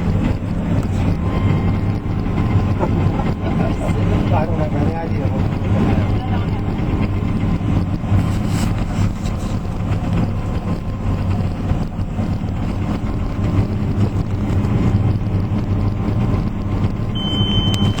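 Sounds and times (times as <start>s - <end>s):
harvester engine drone: 0.0s - 18.0s
steady high-pitched tone: 17.2s - 18.0s.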